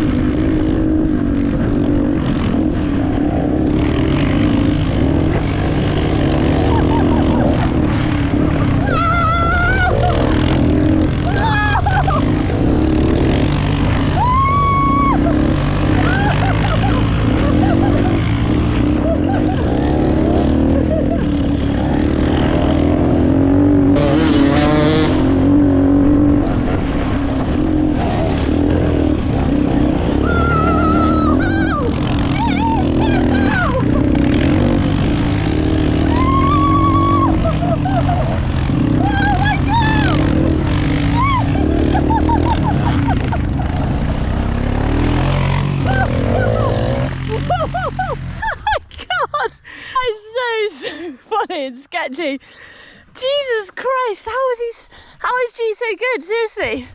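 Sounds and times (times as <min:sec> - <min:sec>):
motorcycle and quad engines revving: 0:00.0 - 0:56.9.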